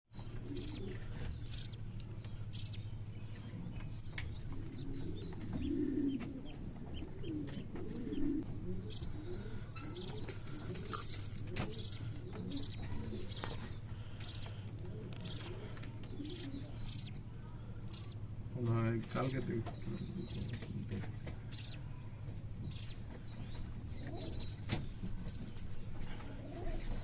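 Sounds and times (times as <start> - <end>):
steady low hum: 0.1 - 27.0
budgies chirping: 0.2 - 27.0
low cooing: 4.8 - 13.6, 15.0 - 17.1.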